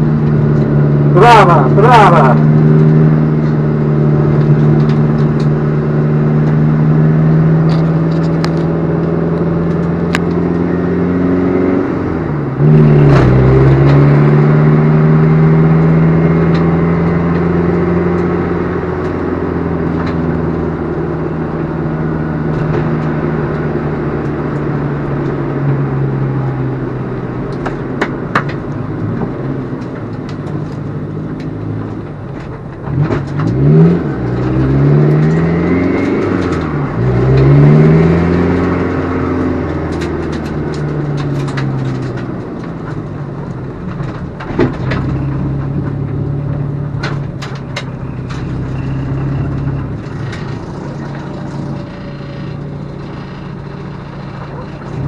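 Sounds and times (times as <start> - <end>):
diesel engine running: 0.0 - 55.0
faint clicks and rattles: 39.6 - 55.0.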